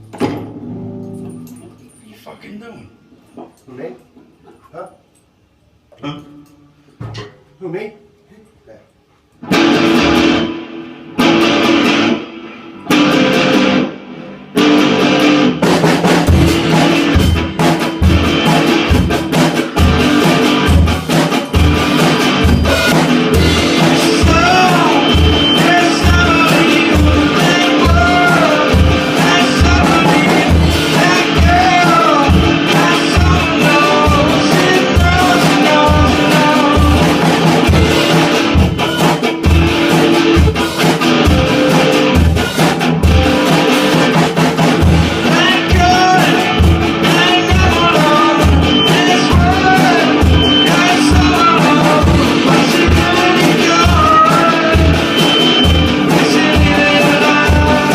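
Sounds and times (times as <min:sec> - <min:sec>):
distorted electric guitar: 0:00.0 - 0:02.0, 0:09.4 - 0:57.9
drum kit beat: 0:09.4 - 0:57.9
person singing: 0:23.4 - 0:37.5, 0:45.1 - 0:57.9.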